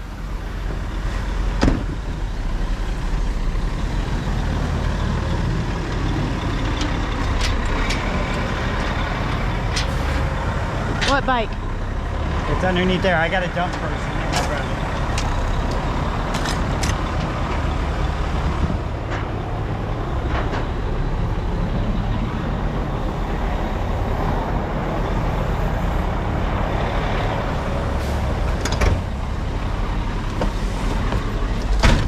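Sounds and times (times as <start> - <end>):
truck engine rumbling: 0.0 - 32.0
knocks and clanks: 20.2 - 20.9, 30.3 - 32.0.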